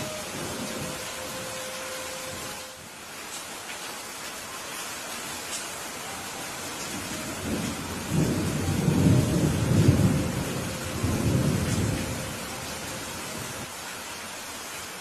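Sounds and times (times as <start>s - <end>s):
rain falling: 0.0s - 15.0s
thunder rumbling: 6.9s - 13.7s.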